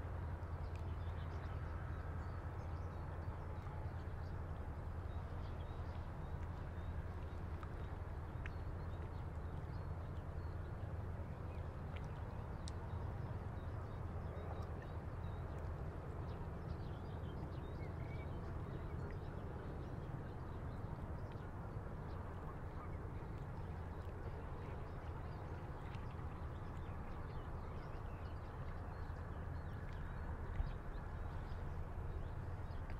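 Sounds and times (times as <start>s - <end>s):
low rumble of breeze: 0.0s - 32.9s.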